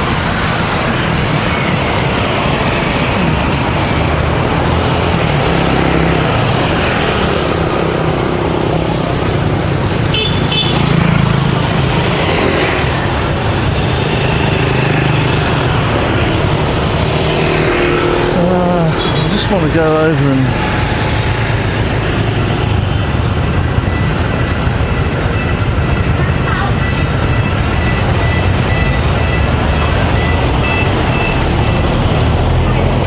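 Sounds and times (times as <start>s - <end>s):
car engines passing: 0.0s - 33.0s
motorbike engines passing: 0.0s - 33.0s
high beep: 26.6s - 32.0s.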